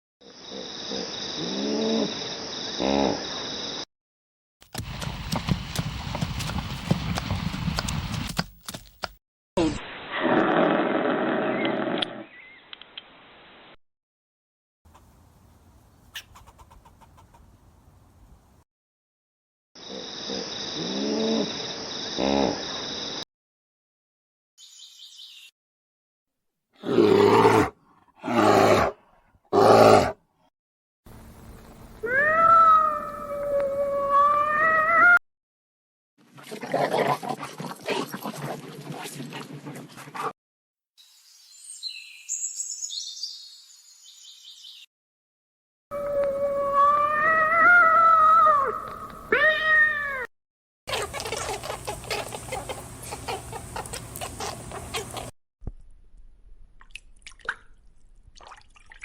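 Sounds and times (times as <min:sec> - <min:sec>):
long drawn-out animal call: 0:00.5 - 0:02.2, 0:02.8 - 0:03.2
chickens clucking: 0:16.2 - 0:17.5, 0:50.9 - 0:55.3.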